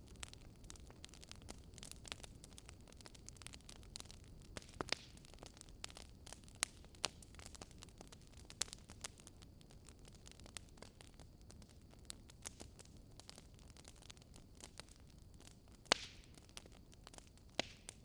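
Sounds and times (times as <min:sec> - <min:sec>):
firewood crackling and popping: 0:00.0 - 0:18.0
low steady hiss: 0:00.0 - 0:18.0.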